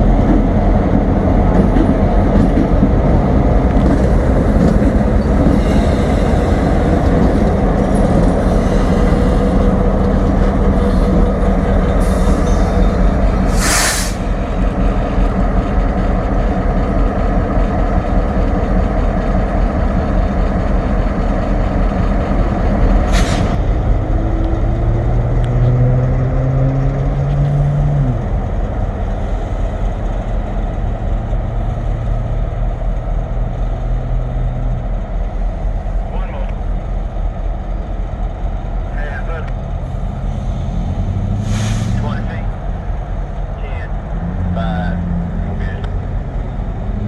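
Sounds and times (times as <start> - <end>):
diesel locomotive rumble: 0.0 - 47.0
air hiss bursts: 13.5 - 14.3.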